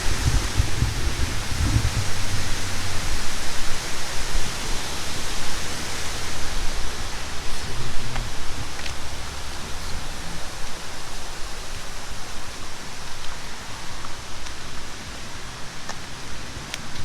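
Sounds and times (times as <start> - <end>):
low rumble: 0.0 - 10.5
running water rushing: 0.0 - 17.0.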